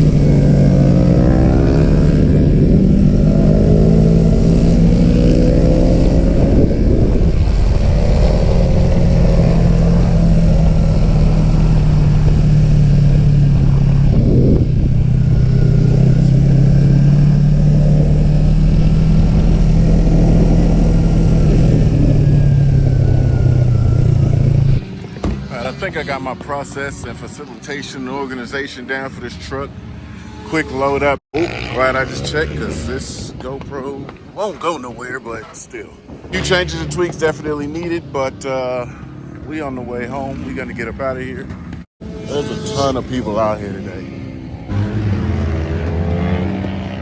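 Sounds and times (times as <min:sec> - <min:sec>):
motorcycle engine at high revs: 0:00.0 - 0:25.9, 0:29.7 - 0:32.8, 0:42.0 - 0:47.0.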